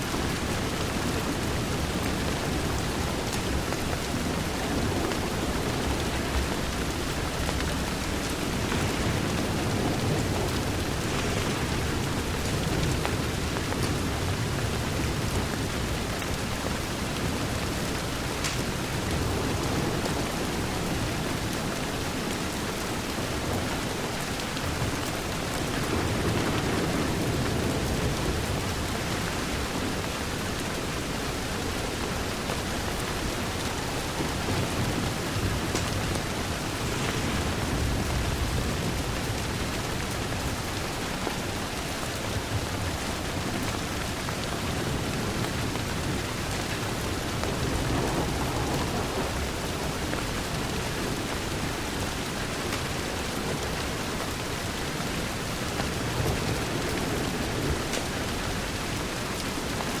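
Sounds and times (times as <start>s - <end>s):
heavy rain on a window: 0.0s - 60.0s.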